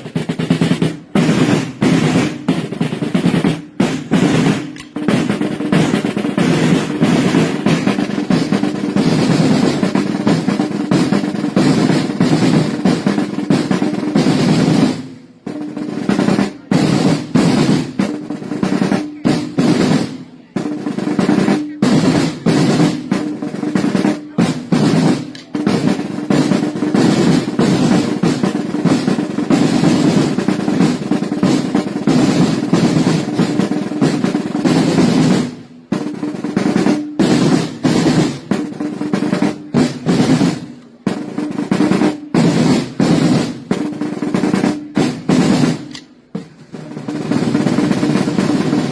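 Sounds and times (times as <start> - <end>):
side drum rolls: 0.0 - 48.9.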